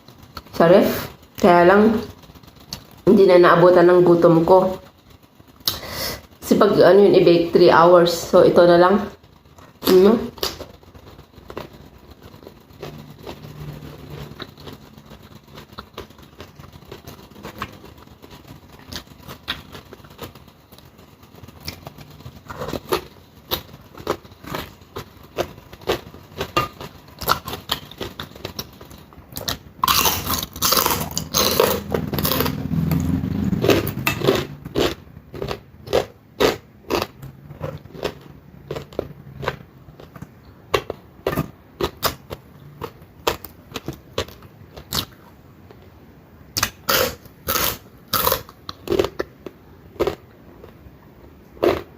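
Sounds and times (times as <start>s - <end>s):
chewing crunchy fried fish: 0.0s - 3.3s, 9.0s - 45.9s, 46.5s - 51.9s.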